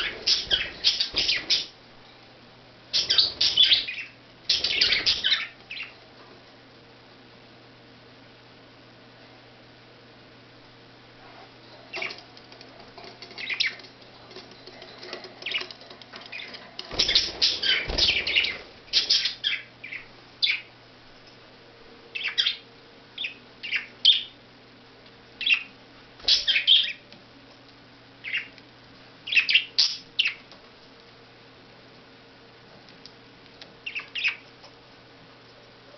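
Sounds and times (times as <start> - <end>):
budgerigars chirping: 0.0 - 1.7, 3.0 - 5.9, 16.3 - 20.7, 22.2 - 22.6, 23.2 - 24.3, 26.3 - 27.0, 29.3 - 30.4, 33.8 - 34.4.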